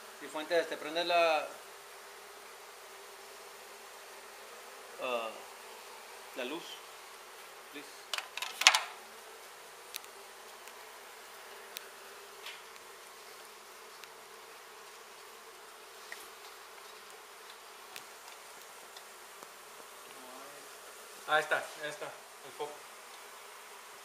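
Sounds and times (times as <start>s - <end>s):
honey bees buzzing: 0.0s - 24.0s
faint clicks: 9.9s - 10.8s, 13.9s - 14.2s.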